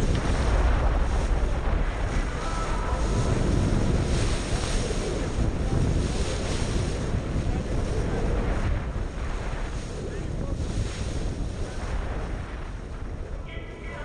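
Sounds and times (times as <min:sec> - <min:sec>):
loud rushing noise: 0:00.0 - 0:10.2
wind buffeting microphone: 0:00.0 - 0:14.0.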